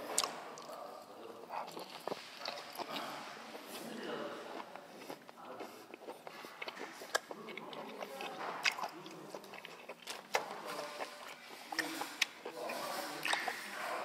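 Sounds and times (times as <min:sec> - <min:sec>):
wet chewing: 0:00.0 - 0:14.0
sharp mouth clicks: 0:05.4 - 0:07.9, 0:08.6 - 0:12.6, 0:13.2 - 0:13.6.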